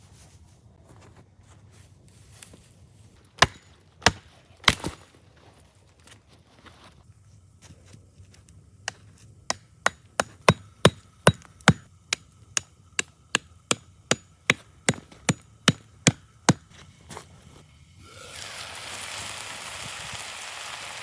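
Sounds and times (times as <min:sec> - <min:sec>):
blade chopping wood: 0:03.4 - 0:05.0, 0:08.9 - 0:16.7.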